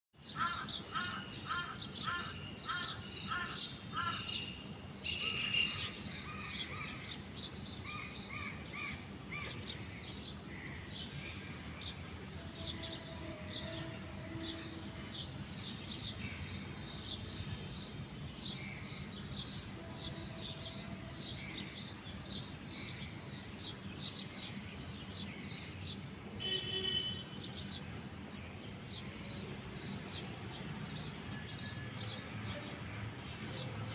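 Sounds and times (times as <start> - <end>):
birds chirping: 0.3 - 12.0.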